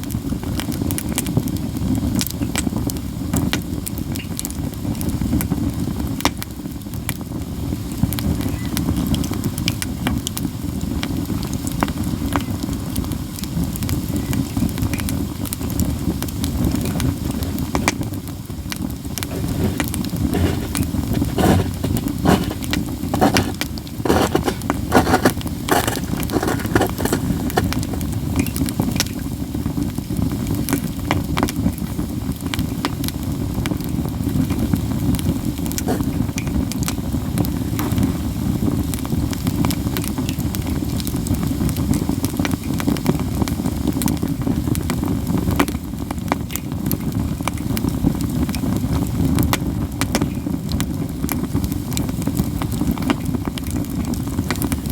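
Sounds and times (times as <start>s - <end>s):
campfire crackling: 14.6s - 37.7s
fire popping and snapping: 14.6s - 54.9s.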